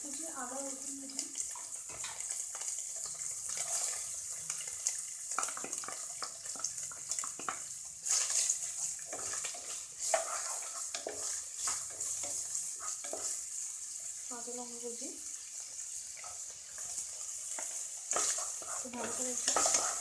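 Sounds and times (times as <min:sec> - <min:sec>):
food sizzling in hot oil: 0:00.0 - 0:20.0
stirring scraping knocks: 0:07.4 - 0:13.4, 0:17.5 - 0:20.0.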